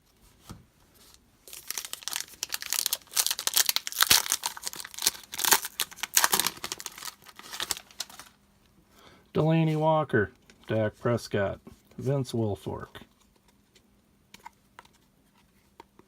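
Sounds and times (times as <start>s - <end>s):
wrapper tearing and crinkling: 1.4s - 8.4s.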